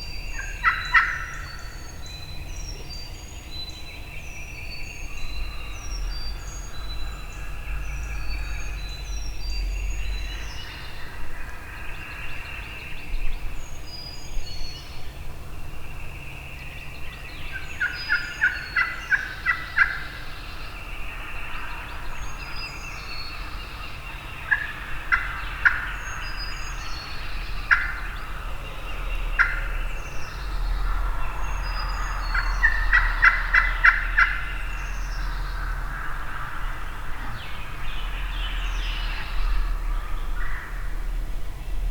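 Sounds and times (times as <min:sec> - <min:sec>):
turkeys gobbling: 0:00.3 - 0:01.6, 0:17.8 - 0:20.1, 0:24.3 - 0:38.3
turkey yelps: 0:00.4 - 0:01.4, 0:27.7 - 0:28.0, 0:29.4 - 0:29.7, 0:32.3 - 0:34.5
small birds chirping: 0:15.8 - 0:41.9.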